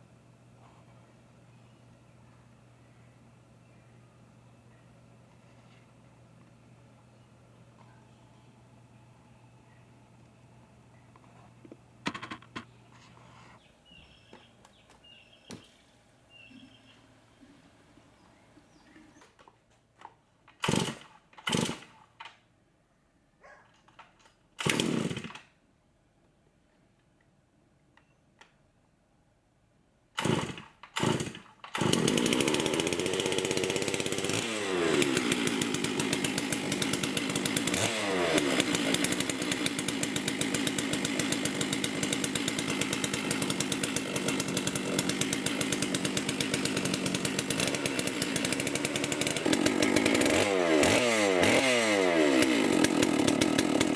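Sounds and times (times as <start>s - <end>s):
chainsaw pull cord: 20.5s - 22.4s, 23.9s - 25.6s, 30.2s - 53.9s
chainsaw running: 20.6s - 21.9s, 24.6s - 25.4s, 30.2s - 53.9s.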